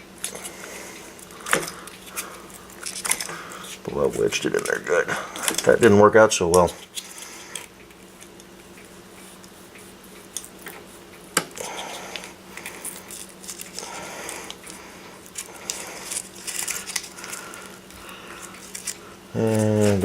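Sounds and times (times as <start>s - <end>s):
cardstock scraping and rustling: 11.6s - 20.0s.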